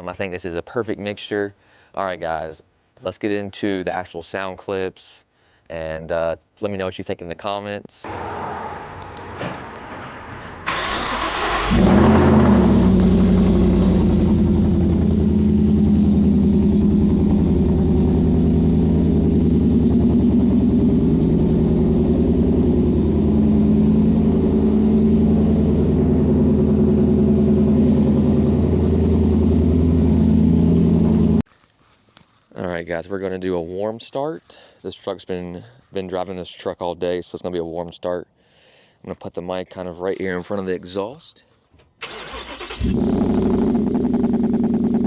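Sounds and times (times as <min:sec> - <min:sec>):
engine starter cranking: 0:10.6 - 0:12.2, 0:42.0 - 0:43.6
engine idling with deep rumble: 0:12.8 - 0:31.4.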